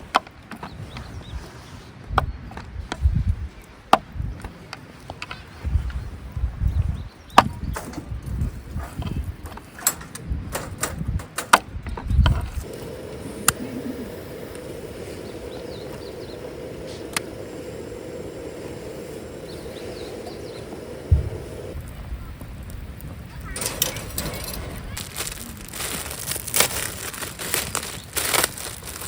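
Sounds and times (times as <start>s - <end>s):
firewood being handled: 0.0s - 10.7s, 12.3s - 29.0s
steady tonal hum: 12.6s - 21.8s.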